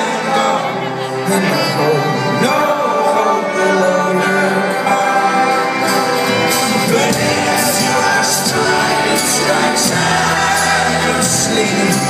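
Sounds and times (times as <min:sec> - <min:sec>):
folk-rock band playing live: 0:00.0 - 0:12.0.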